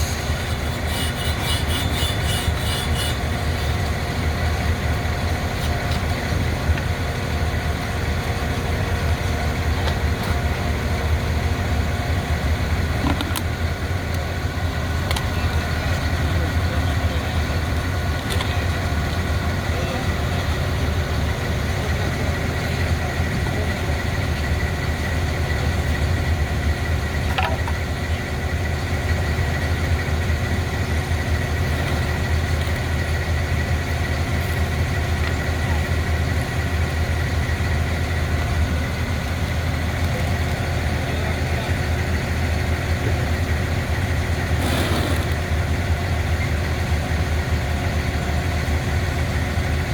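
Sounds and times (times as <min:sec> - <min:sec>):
engine idling: 0:00.0 - 0:49.9.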